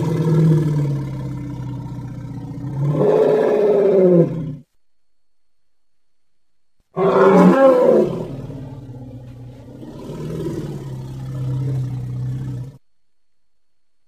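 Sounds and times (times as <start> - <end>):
mammoth roar and growl: 0.0 - 4.6, 7.0 - 12.8.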